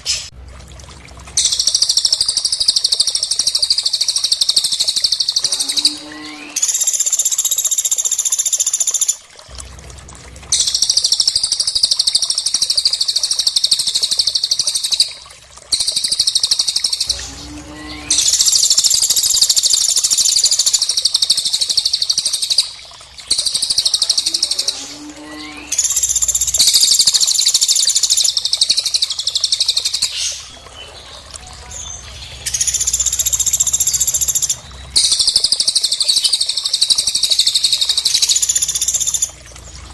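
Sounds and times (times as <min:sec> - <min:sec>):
songbird chattering trills: 0:01.4 - 0:09.2, 0:15.8 - 0:39.3.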